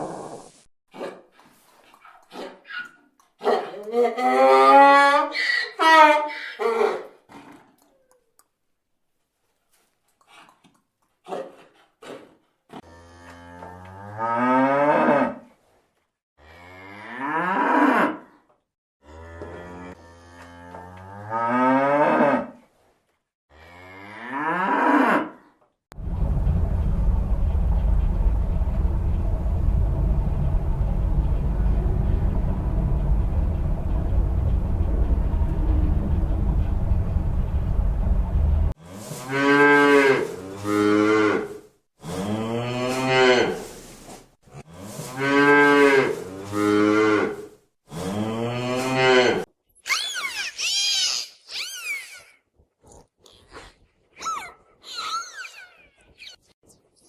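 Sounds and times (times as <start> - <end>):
low rumbling noise: 25.9 - 38.8.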